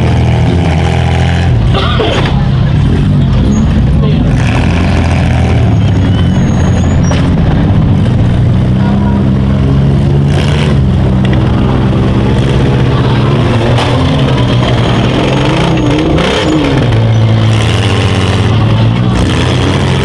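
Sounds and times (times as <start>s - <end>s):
car engines revving hard: 0.0s - 20.0s.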